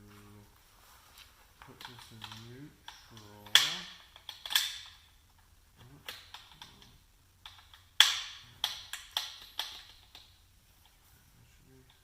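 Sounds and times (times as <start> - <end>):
metallic clicks of transmission gears: 1.6 - 11.0.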